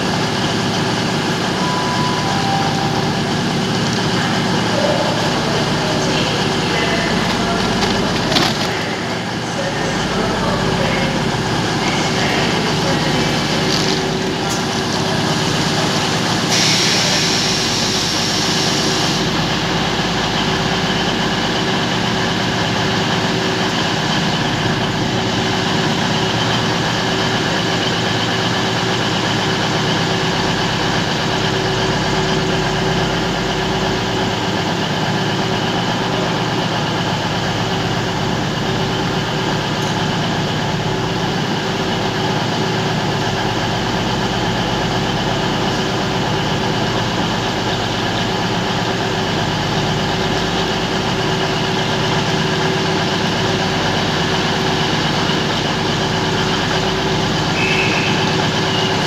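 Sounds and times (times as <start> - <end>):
train machinery humming: 0.0 - 59.0
hiss: 16.5 - 19.3.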